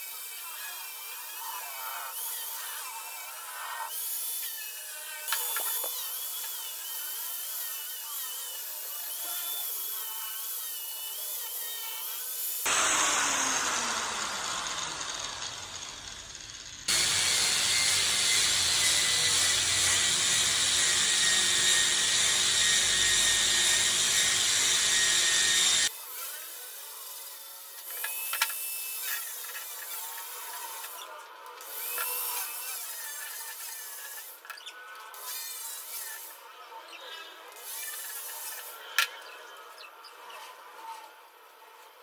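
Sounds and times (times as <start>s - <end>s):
power tools cutting wood: 0.0s - 42.0s.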